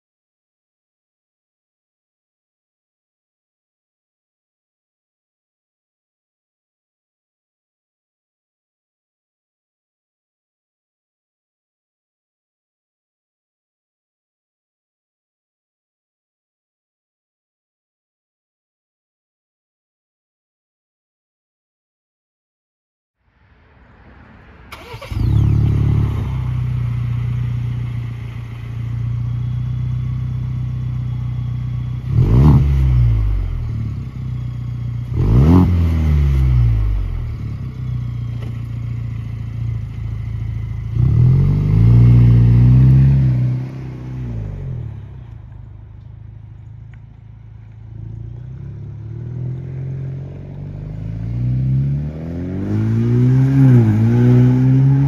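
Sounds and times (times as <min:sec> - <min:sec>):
car engine idling and revving: 0:23.4 - 0:55.0.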